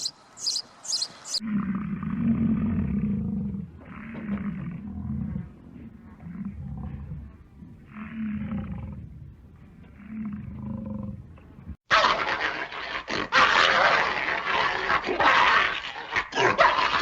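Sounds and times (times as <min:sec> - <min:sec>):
large animal low calls: 0:01.4 - 0:09.2.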